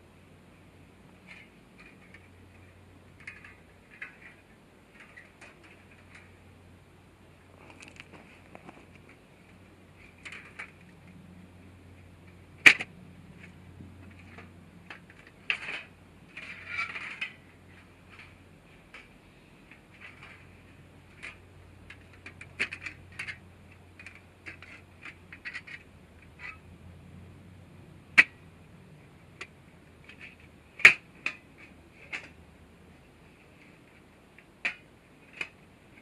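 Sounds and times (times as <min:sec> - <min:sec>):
small hard objects clicking: 0:07.7 - 0:08.7.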